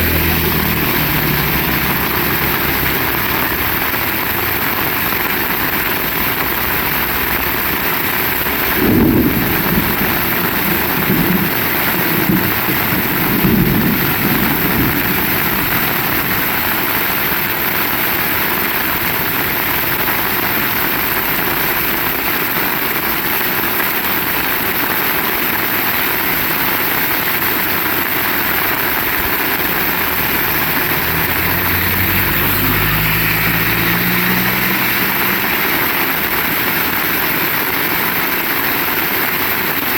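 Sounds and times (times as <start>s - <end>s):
low rumbling: 0.0s - 5.1s, 7.2s - 19.8s
motor engine: 0.0s - 5.2s, 28.6s - 37.3s
heavy rain: 0.0s - 39.9s.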